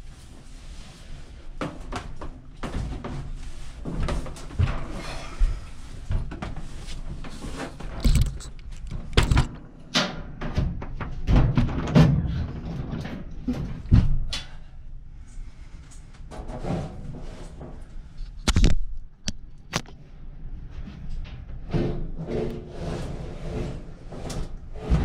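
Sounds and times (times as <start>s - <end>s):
knocks and thumps: 7.9s - 9.6s, 10.2s - 14.3s.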